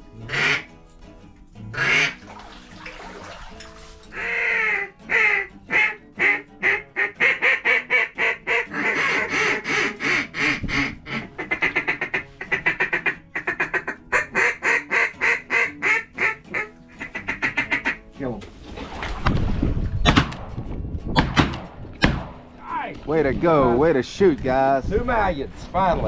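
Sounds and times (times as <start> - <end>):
duck call quacks: 0.3 - 0.7, 1.8 - 2.2, 4.1 - 18.0.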